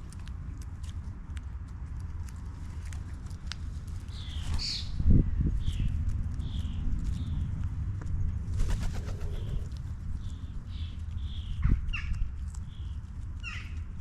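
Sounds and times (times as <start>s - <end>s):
sharp falling bird calls: 8.6s - 10.4s
bird chirping: 8.6s - 11.5s.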